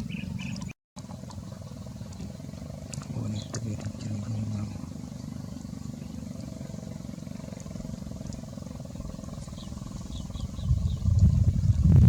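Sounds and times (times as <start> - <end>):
small birds chirping: 0.0 - 0.8, 8.3 - 11.5
low steady rumble: 0.0 - 12.0.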